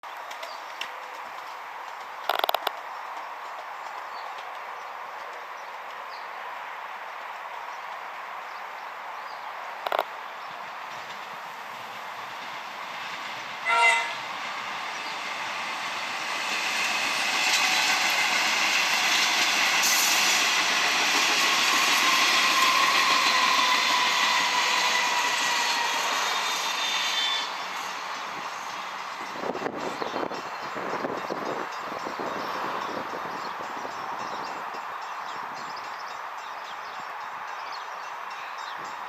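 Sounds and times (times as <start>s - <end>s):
train running by with whine: 0.1s - 39.0s
train horn toot: 13.6s - 14.3s, 22.4s - 28.0s.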